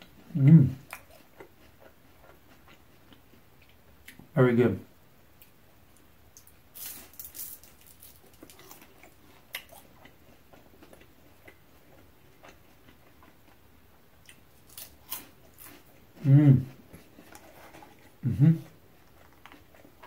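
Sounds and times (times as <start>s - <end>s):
crunching spring roll: 6.7s - 9.8s.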